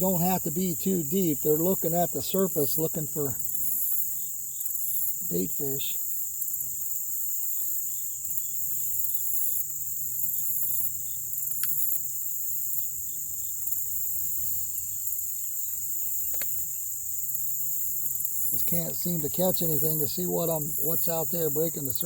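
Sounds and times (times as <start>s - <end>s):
insects trilling: 0.0s - 22.0s
pulsing insect buzz: 0.0s - 22.0s
faint clicks: 16.2s - 16.6s.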